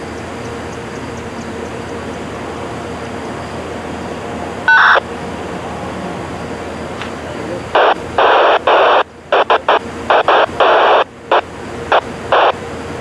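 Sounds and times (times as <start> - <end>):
background hum and hiss: 0.0 - 13.0
radio scanner electronic tones: 4.6 - 5.0, 7.4 - 12.6.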